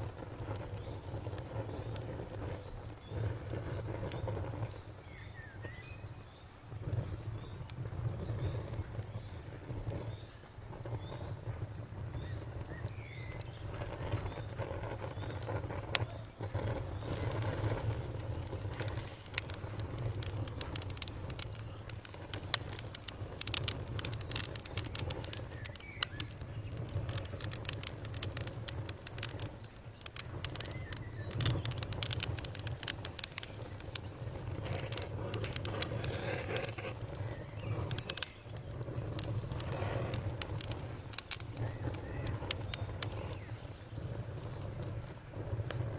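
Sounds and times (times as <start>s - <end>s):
fire crackling and popping: 0.0s - 45.9s
insect trilling: 12.1s - 45.9s.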